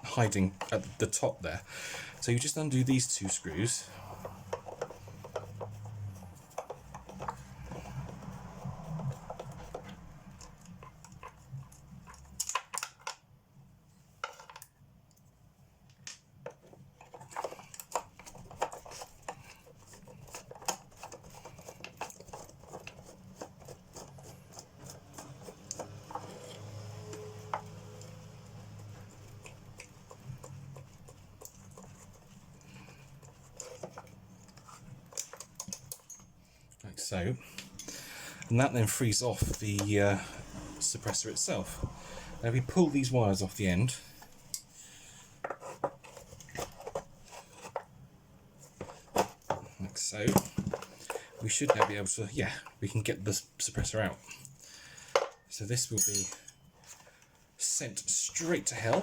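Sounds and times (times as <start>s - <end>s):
light metallic clicks and scrapes: 2.1s - 13.2s, 15.9s - 36.8s.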